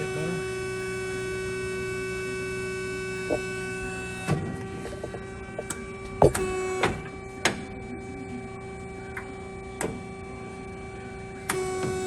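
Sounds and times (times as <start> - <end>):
machine hum: 0.0 - 12.0
mechanical clunks and clicks: 4.2 - 7.7.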